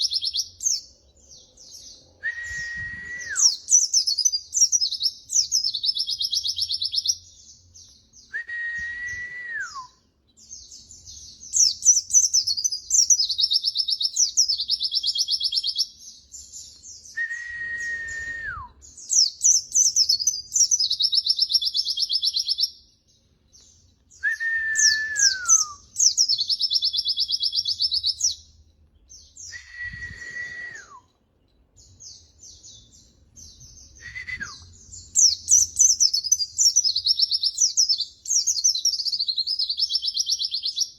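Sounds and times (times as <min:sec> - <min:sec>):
low drawn-out falling whistle: 0:02.2 - 0:03.5, 0:08.4 - 0:09.9, 0:17.2 - 0:18.8, 0:29.5 - 0:31.0.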